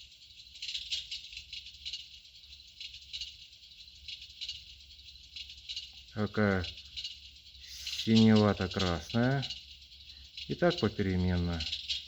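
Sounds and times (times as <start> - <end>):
electric fireplace crackling effect: 0.0 - 12.0.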